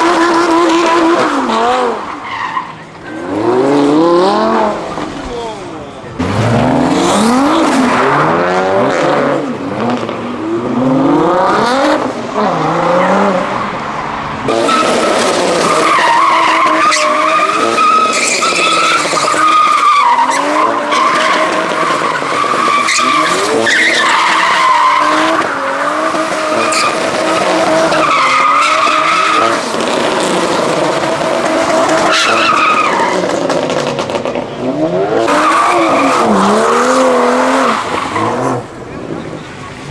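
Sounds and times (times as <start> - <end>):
car engine revving: 0.0 - 39.9
tyres squealing: 14.1 - 33.6, 34.3 - 39.9.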